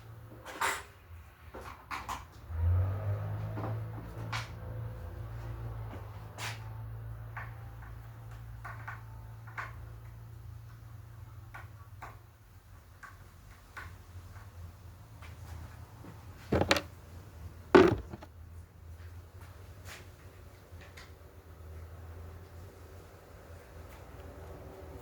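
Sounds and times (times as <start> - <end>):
clattering knocks: 16.5 - 16.9, 17.8 - 18.3.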